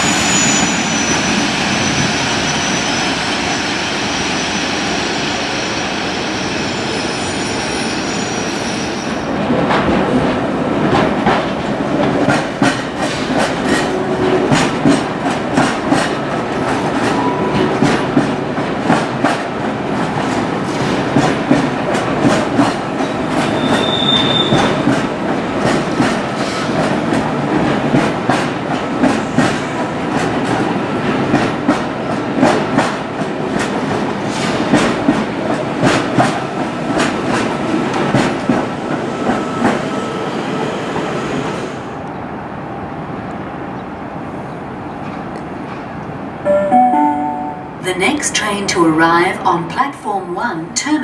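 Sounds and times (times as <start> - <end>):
wheel squeal: 0.0 - 4.6, 23.5 - 24.7
train wheels clattering over rail joints: 10.9 - 39.8.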